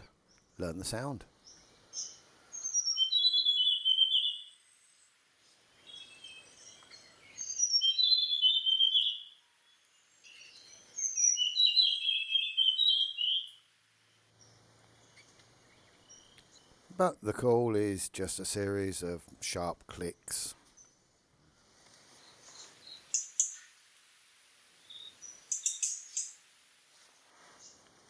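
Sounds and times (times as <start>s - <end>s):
bird singing whistled notes: 1.4s - 4.7s, 5.8s - 13.6s, 22.2s - 23.7s, 24.8s - 26.4s.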